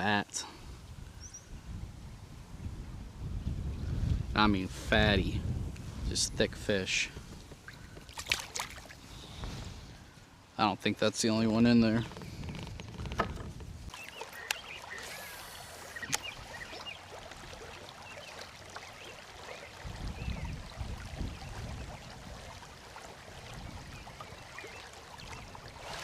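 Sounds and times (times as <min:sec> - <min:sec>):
river water flowing: 0:07.0 - 0:10.6, 0:12.1 - 0:26.0
sharp clicks and knocks: 0:12.0 - 0:13.7.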